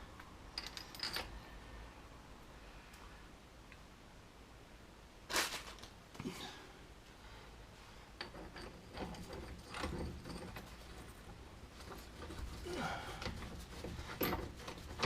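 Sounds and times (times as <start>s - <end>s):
metal tools clinking: 0.6s - 1.4s, 8.2s - 15.0s.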